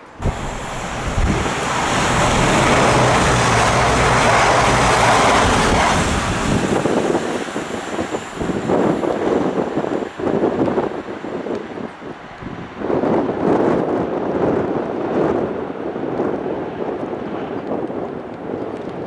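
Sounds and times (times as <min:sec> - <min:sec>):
low engine hum: 0:00.0 - 0:09.2
train passing at speed: 0:00.0 - 0:15.9.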